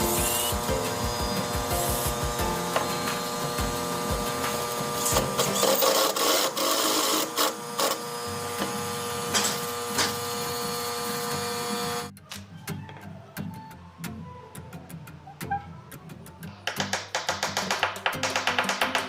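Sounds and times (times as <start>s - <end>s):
power tool motor running: 0.0s - 12.1s.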